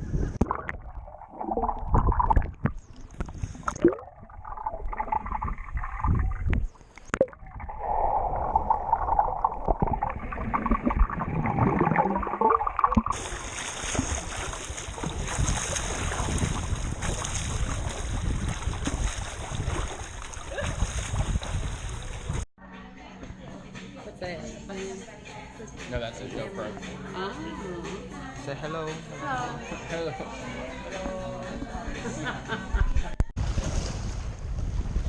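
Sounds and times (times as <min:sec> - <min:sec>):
pool water splashing: 0:00.4 - 0:22.4.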